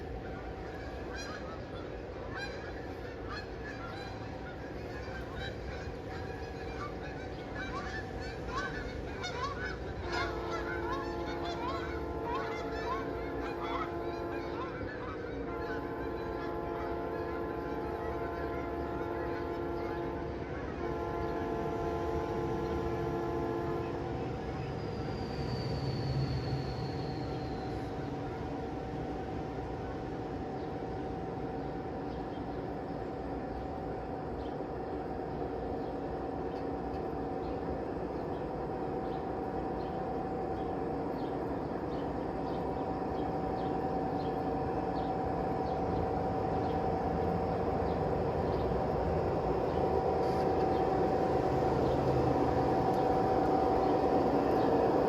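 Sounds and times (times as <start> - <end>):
regular clicking of train: 0.0 - 55.0
train running with hum: 0.0 - 55.0
train horn chord: 5.0 - 24.6, 43.6 - 55.0.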